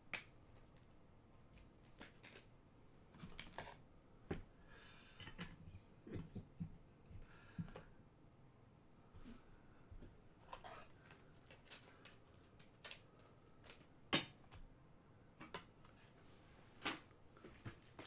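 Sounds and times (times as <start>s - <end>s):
cards rustling and clicking: 0.2s - 2.5s, 10.4s - 14.6s.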